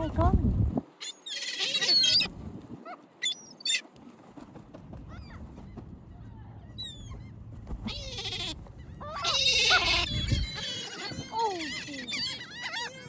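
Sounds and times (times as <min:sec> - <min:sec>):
birds calling harshly: 0:01.0 - 0:02.3, 0:03.2 - 0:03.8, 0:06.8 - 0:13.0.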